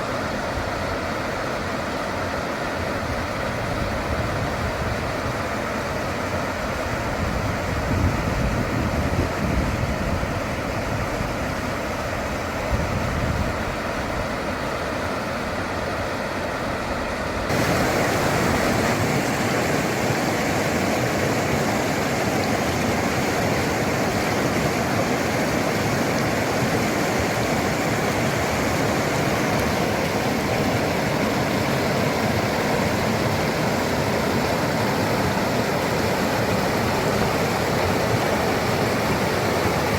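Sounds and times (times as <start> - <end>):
loud rushing noise: 17.5 - 22.2.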